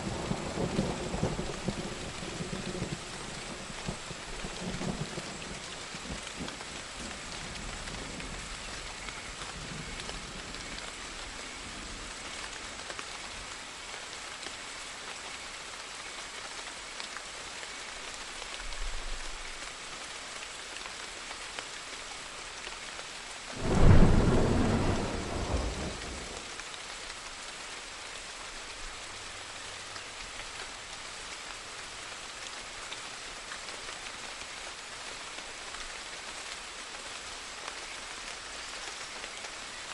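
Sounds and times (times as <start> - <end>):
steady rain: 0.0 - 39.9
thunder rumbling: 23.5 - 26.4
loud thunderclap: 23.6 - 26.4.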